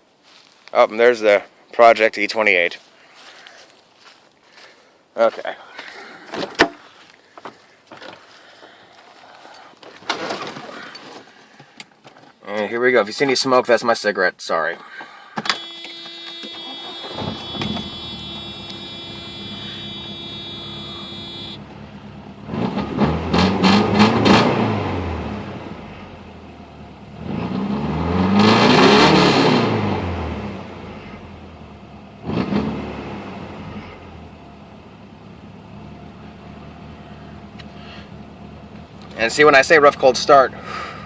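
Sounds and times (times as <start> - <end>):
starter motor cranking whine: 15.5 - 21.6
car engine starting: 15.5 - 41.0.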